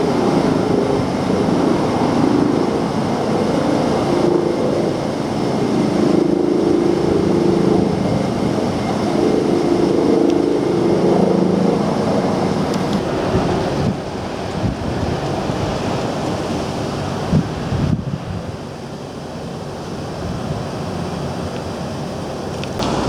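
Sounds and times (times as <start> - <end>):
air conditioner blowing air: 22.7 - 23.0.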